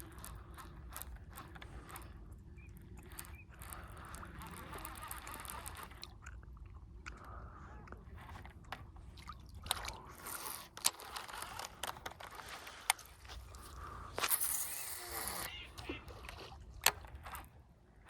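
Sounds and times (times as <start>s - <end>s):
fishing reel cranking: 0.0s - 6.2s, 8.1s - 17.6s.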